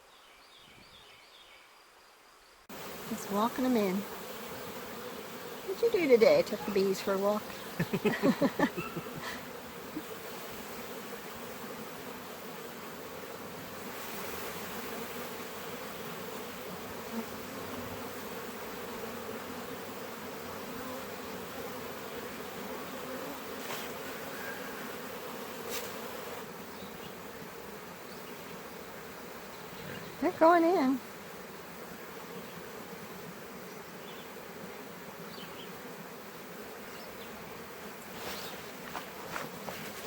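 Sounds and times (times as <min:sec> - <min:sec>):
swarm of bees buzzing: 0:02.7 - 0:40.0.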